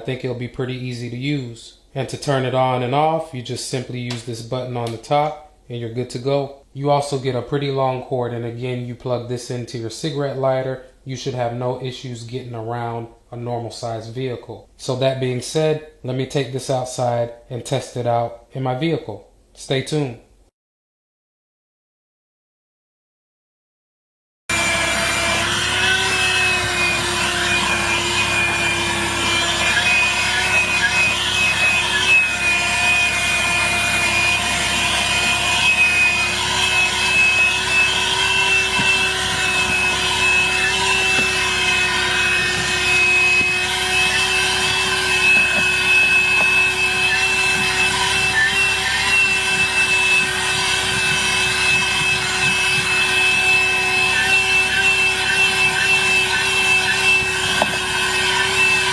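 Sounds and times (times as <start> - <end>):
handheld vacuum motor whine: 24.5 - 58.9.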